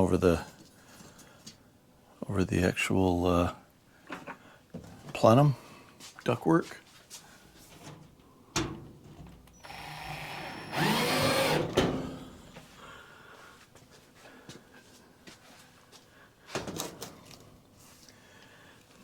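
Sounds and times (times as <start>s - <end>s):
power drill running: 9.6s - 12.6s.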